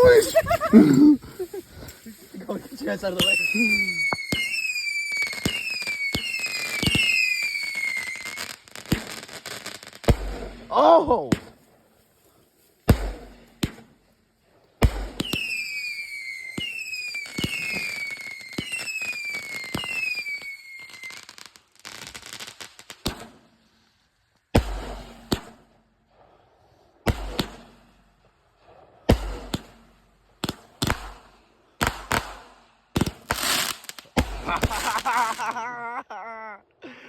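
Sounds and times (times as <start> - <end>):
firework bangs: 0.0 - 10.7, 12.8 - 13.9, 14.8 - 21.4, 22.0 - 23.5, 24.5 - 25.7, 27.0 - 28.1, 28.7 - 35.8
firework crackling: 0.0 - 12.1, 14.8 - 23.5, 30.4 - 35.9
whistling firework shots: 2.5 - 10.7, 14.8 - 23.5, 27.0 - 28.0, 28.6 - 35.6.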